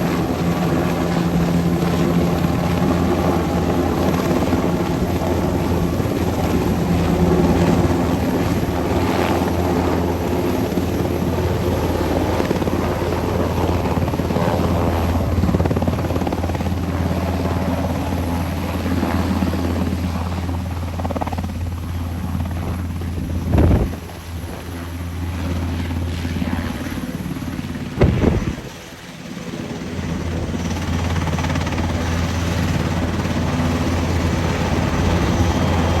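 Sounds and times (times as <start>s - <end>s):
helicopter rotor and turbine drone: 0.0s - 36.0s
loud bumps: 28.0s - 28.7s.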